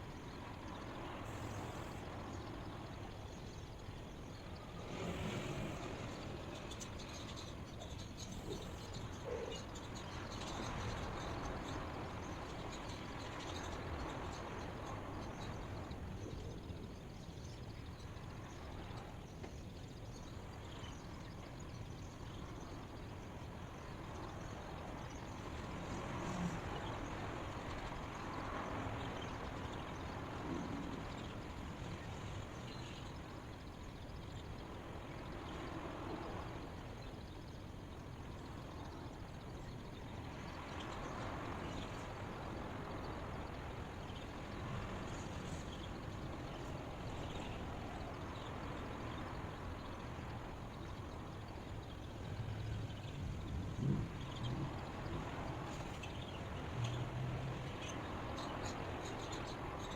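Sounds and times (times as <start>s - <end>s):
outdoor background noise: 0.0s - 59.9s.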